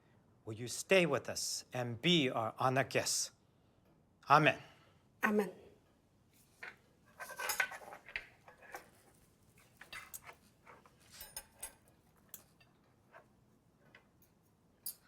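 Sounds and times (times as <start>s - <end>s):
cutlery clinking on plates: 6.6s - 9.0s, 9.7s - 13.3s, 14.2s - 15.0s.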